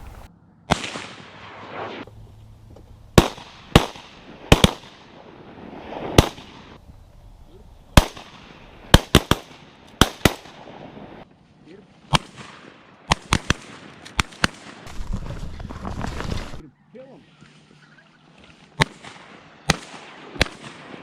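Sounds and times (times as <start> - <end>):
shotgun shots echoing: 0.0 - 2.0, 3.2 - 5.2, 7.9 - 10.8, 18.8 - 21.0.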